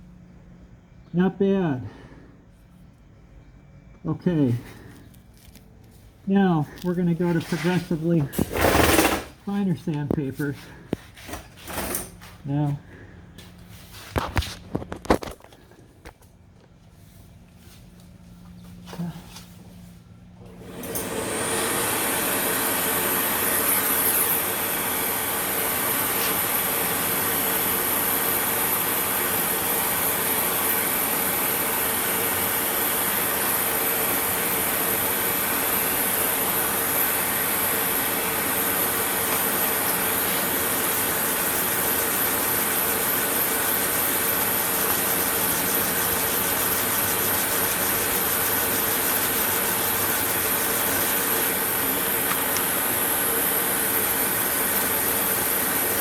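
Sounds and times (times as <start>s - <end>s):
electric sanding tool whine: 20.5s - 56.0s.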